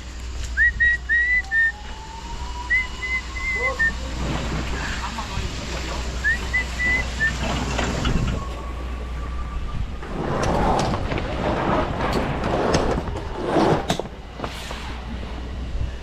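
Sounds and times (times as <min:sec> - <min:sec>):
truck engine running: 0:02.7 - 0:09.2.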